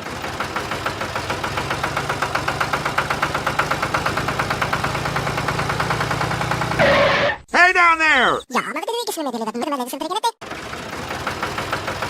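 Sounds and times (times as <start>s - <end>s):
small engine puttering: 0.0s - 7.4s, 10.4s - 12.0s.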